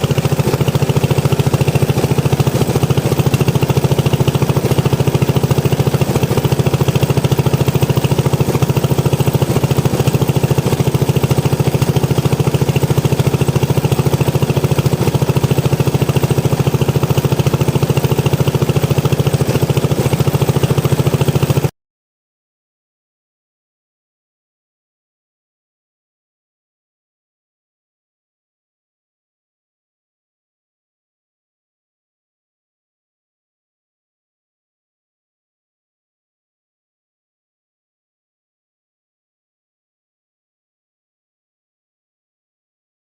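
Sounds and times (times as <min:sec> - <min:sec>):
engine running with rapid beat: 0:00.0 - 0:21.7.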